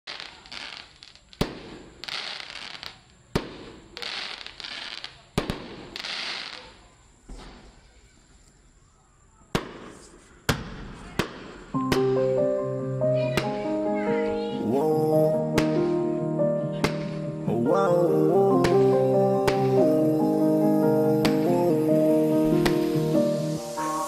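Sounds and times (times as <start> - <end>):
firework bangs: 0.1 - 8.0, 9.5 - 12.2, 15.6 - 15.9, 16.7 - 17.3, 18.5 - 19.9, 21.2 - 21.8, 22.4 - 24.0
firework crackling hiss: 0.1 - 8.8, 9.5 - 12.2, 18.5 - 24.0.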